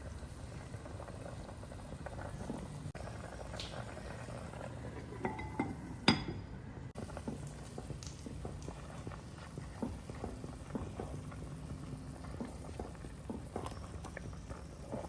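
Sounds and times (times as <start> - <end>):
food bubbling in a pot: 0.0 - 15.0
kitchenware clinking: 4.9 - 6.7.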